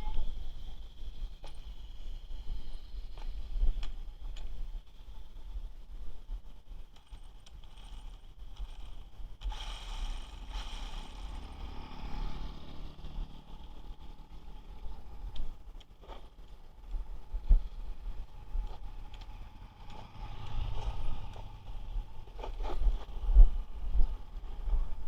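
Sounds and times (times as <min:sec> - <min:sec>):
wind rumbling on microphone: 0:00.0 - 0:25.0
rc truck motor and gear whine: 0:06.7 - 0:23.2.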